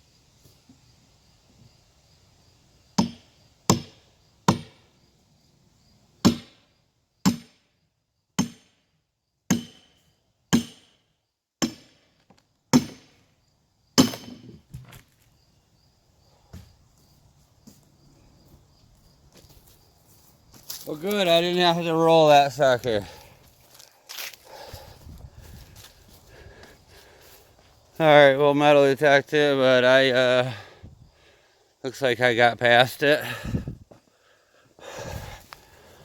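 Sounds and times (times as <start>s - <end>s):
hammer striking wedge in log: 3.0s - 4.8s, 6.2s - 6.6s, 7.3s - 7.6s, 8.4s - 8.7s, 9.5s - 11.0s, 11.6s - 12.0s, 12.7s - 13.1s, 14.0s - 14.5s.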